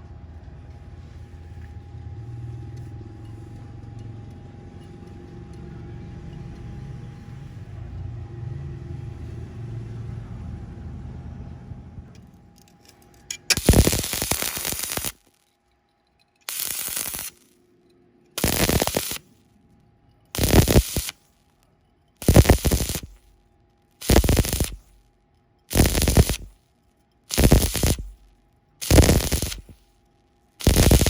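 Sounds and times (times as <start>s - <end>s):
low steady rumble: 0.0s - 13.6s
welding arc crackling: 12.9s - 15.4s, 16.4s - 17.6s, 18.4s - 19.3s, 20.3s - 21.2s, 22.2s - 23.3s, 24.0s - 25.0s, 25.7s - 26.6s, 27.3s - 29.9s, 30.6s - 31.0s.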